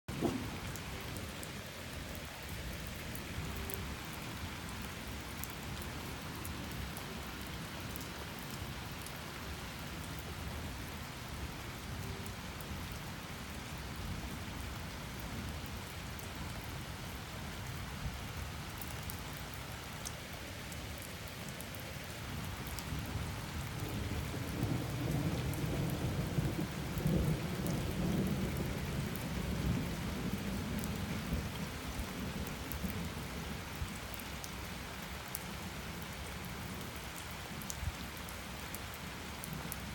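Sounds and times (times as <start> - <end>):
low rumble of thunder: 0.1 - 1.5, 22.6 - 33.3
heavy rain pattering: 0.1 - 39.9.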